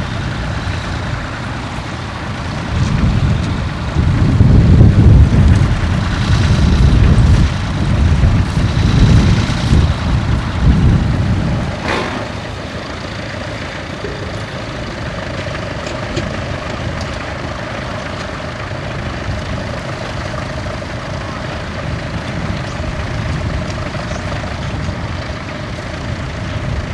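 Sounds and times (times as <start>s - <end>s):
tractor engine rumbling: 0.0s - 26.9s
sharp knock: 11.8s - 12.4s.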